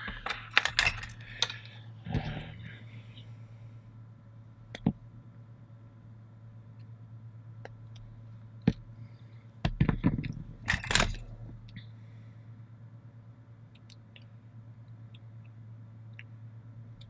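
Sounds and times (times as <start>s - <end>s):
clatter and scrape of small tools: 0.0s - 1.7s
steady low hum: 0.0s - 17.0s.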